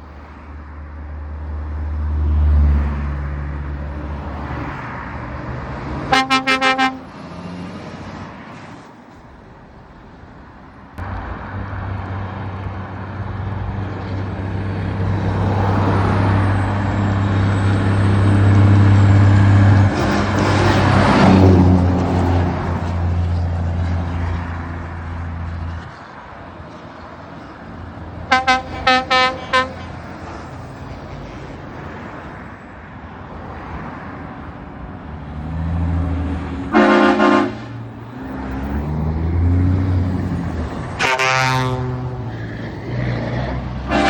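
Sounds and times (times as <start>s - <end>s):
lorries driving past: 0.0s - 44.0s
horn blast falling in pitch: 6.1s - 7.1s, 36.7s - 37.6s
short horn toots: 6.1s - 7.1s, 28.3s - 29.9s, 36.7s - 37.7s, 41.0s - 42.2s.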